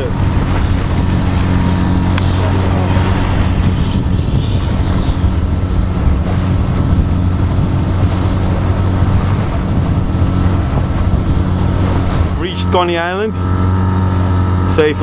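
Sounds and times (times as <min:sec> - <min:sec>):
outboard motor humming: 0:00.0 - 0:15.0
water rushing past hull: 0:00.0 - 0:15.0
wind buffeting microphone: 0:00.0 - 0:15.0.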